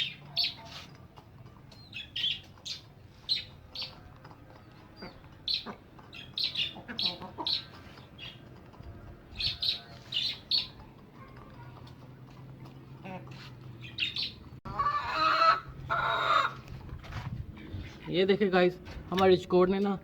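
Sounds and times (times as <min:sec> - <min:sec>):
caged birds chirping: 0:00.0 - 0:20.0.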